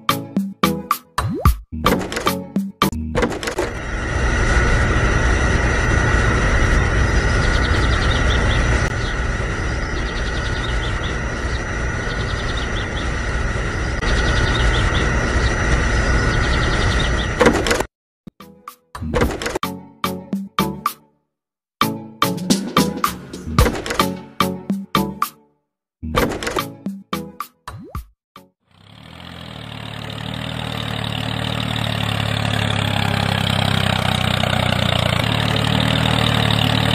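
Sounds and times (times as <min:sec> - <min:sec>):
tractor engine idling: 0:03.3 - 0:15.8, 0:28.7 - 0:36.9
small electric motor whining: 0:03.4 - 0:17.4
birds chirping: 0:05.6 - 0:17.5.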